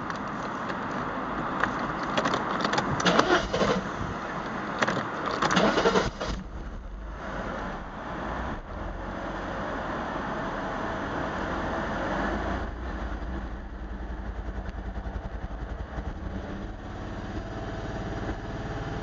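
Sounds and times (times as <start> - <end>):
engine clicks: 0.0 - 6.6.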